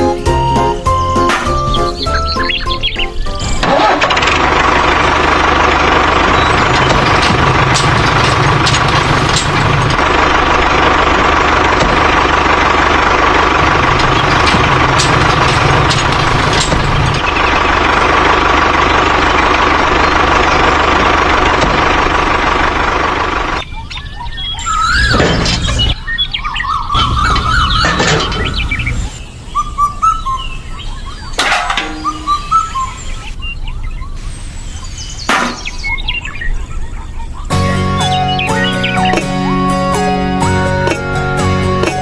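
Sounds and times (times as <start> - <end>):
engine running with whine: 0.0 - 42.0.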